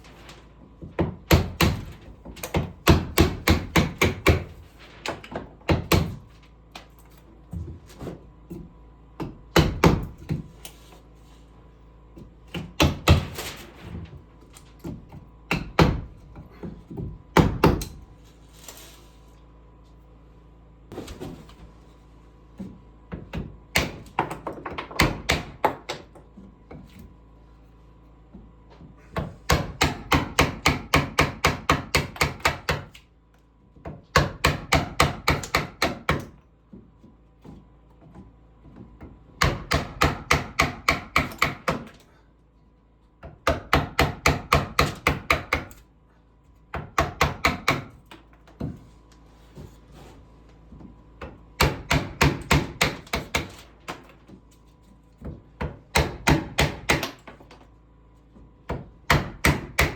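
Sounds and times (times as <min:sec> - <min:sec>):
hammer striking wood: 0:00.9 - 0:04.6, 0:05.3 - 0:06.3, 0:09.2 - 0:10.4, 0:12.5 - 0:13.4, 0:14.8 - 0:17.9, 0:23.1 - 0:26.8, 0:29.2 - 0:33.0, 0:33.8 - 0:36.3, 0:39.0 - 0:42.0, 0:43.2 - 0:45.8, 0:46.7 - 0:48.8, 0:51.2 - 0:54.1, 0:55.2 - 0:57.4, 0:58.7 - 0:59.9.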